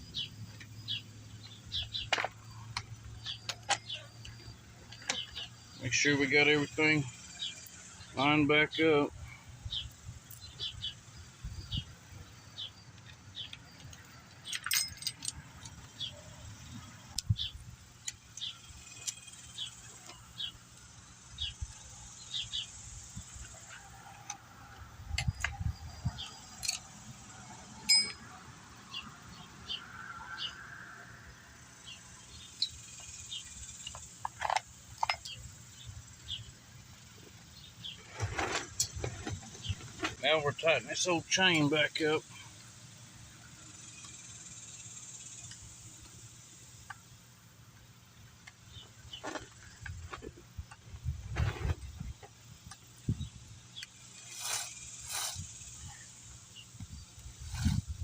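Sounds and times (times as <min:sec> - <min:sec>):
saw chain links rattling: 0:14.4 - 0:15.9, 0:27.8 - 0:28.2.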